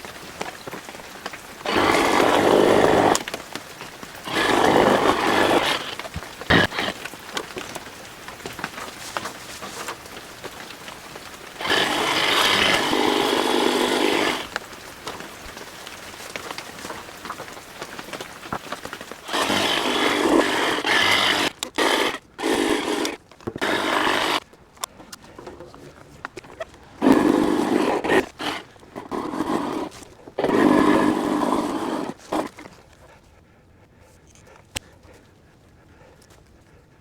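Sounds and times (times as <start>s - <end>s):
power hedge trimmer running: 1.6s - 7.7s, 11.5s - 14.6s, 18.9s - 24.4s, 27.0s - 32.6s.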